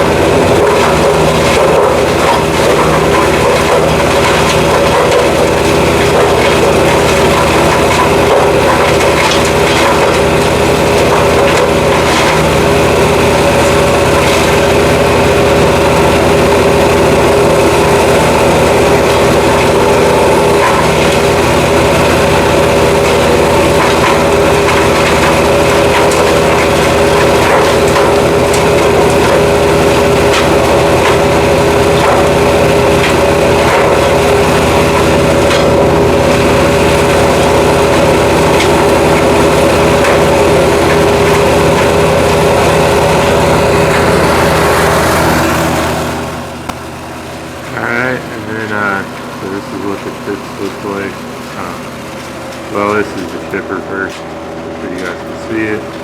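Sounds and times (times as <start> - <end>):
wood chipper engine running: 0.0 - 56.0
wood cracking in chipper: 0.0 - 56.0.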